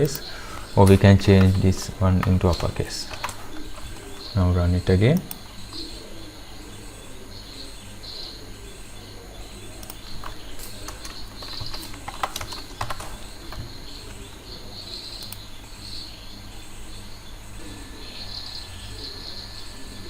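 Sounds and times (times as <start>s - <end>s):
sharp clicks: 0.0s - 4.3s, 9.8s - 14.3s, 15.1s - 15.5s
faint birds chirping: 0.0s - 20.0s
steady low hum: 0.0s - 20.0s.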